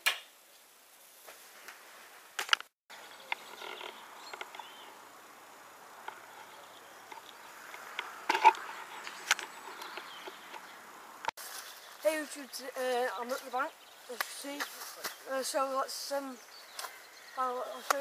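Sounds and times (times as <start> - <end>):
faint outdoor hiss: 0.0 - 18.0.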